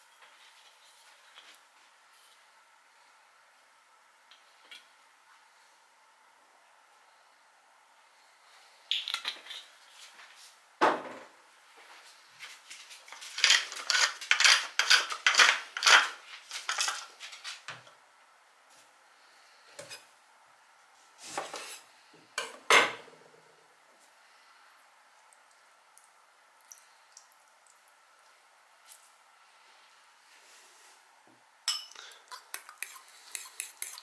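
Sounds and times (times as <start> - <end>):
pepper mill grinding: 13.1 - 17.1, 32.1 - 34.0.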